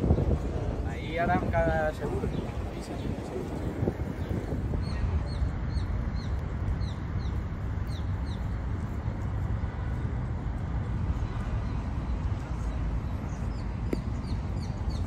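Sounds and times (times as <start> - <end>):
wind rumble on microphone: 0.0 - 15.0
small birds chirping: 1.9 - 8.7, 11.1 - 15.0.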